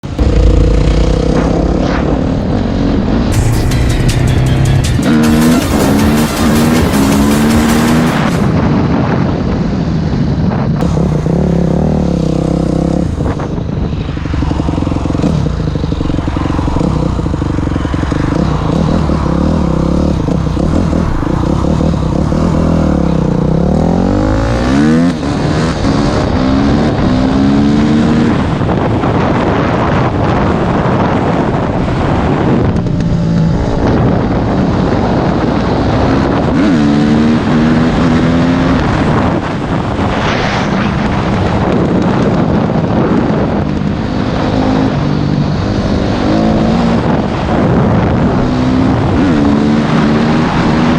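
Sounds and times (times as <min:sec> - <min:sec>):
dirt bike engine accelerating: 0:00.0 - 0:09.2.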